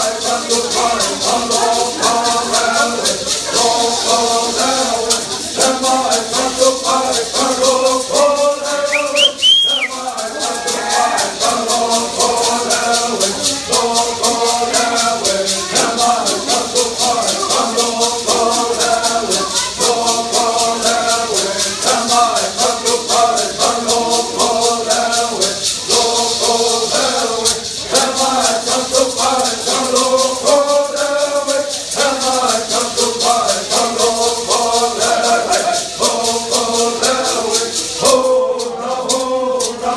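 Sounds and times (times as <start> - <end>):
hand rattles shaking: 0.0 - 39.9
singers chanting in unison: 0.0 - 39.9
whistle rising and falling: 8.9 - 10.0.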